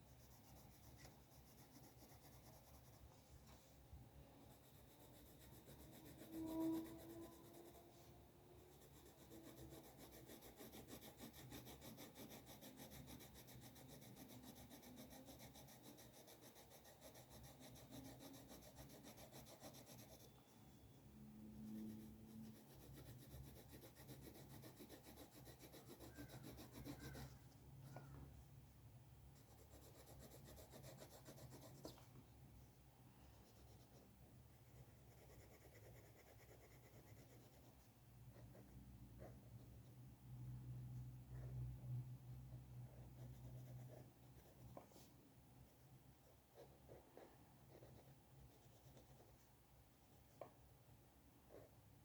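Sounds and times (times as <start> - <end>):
drawing tool scratching paper: 0.1 - 3.1, 4.5 - 7.9, 8.6 - 20.4, 21.6 - 27.4, 29.4 - 32.0
pitched squeak: 26.0 - 28.3.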